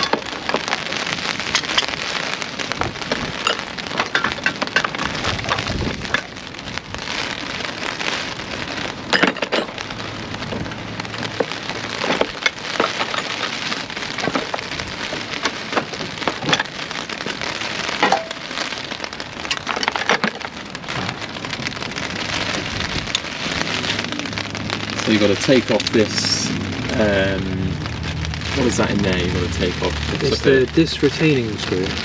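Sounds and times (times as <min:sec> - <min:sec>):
rain falling: 0:00.0 - 0:32.0.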